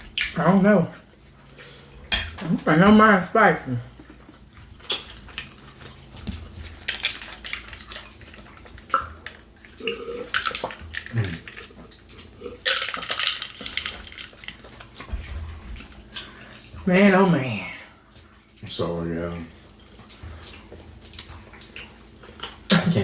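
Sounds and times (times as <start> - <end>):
chewing and mouth sounds: 3.9 - 16.9, 17.9 - 22.9.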